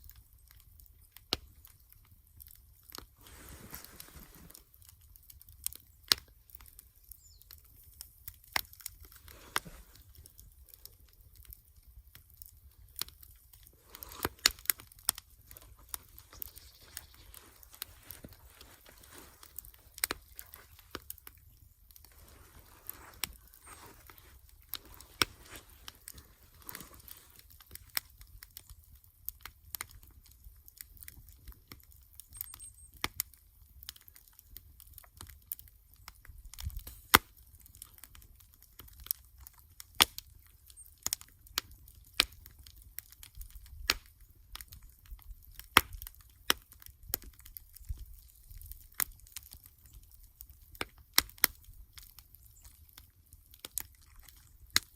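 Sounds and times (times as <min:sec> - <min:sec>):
campfire crackling and popping: 0:00.0 - 0:54.9.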